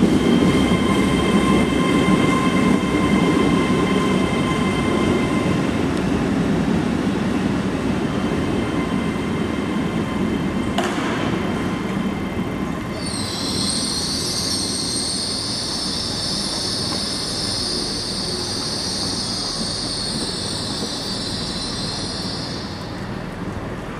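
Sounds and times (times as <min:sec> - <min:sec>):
electric train whine: 0:00.0 - 0:23.9
high-pitched wheel squeal: 0:12.9 - 0:22.9.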